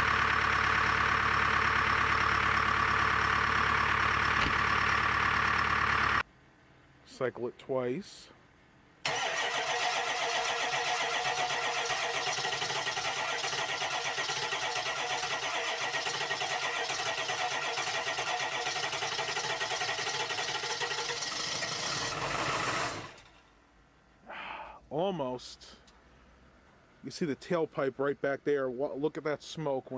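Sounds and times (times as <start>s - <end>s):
diesel engine cranking: 0.0s - 6.2s, 9.0s - 23.5s.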